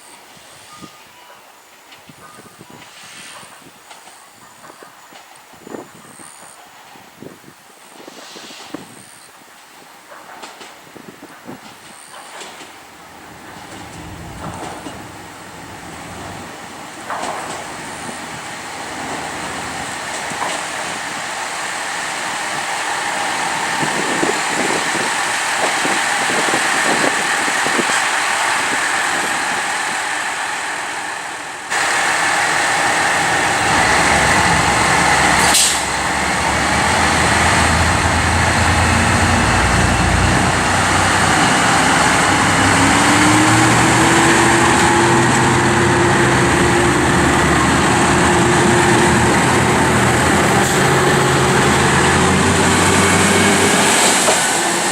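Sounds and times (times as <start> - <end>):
train running noise with knocks: 0.3 - 54.9
short air hiss: 2.9 - 3.5, 8.0 - 9.0, 35.4 - 35.9
diesel railcar engine revving: 12.0 - 54.9.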